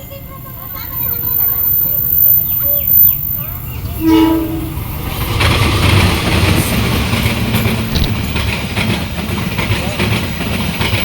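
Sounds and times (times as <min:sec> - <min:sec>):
train rumbling past on rails: 0:00.0 - 0:11.0
train horn: 0:03.8 - 0:05.0.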